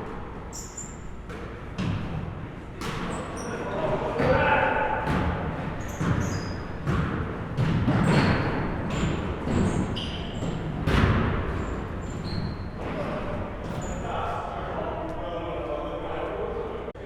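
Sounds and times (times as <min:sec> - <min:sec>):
sneaker squeaks: 0:00.0 - 0:14.5
basketballs bouncing on gym floor: 0:00.6 - 0:14.1.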